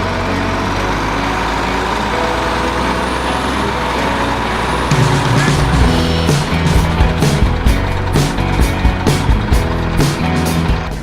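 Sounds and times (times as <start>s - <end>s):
loud low rumble: 0.0s - 11.0s
truck engine running: 0.0s - 11.0s.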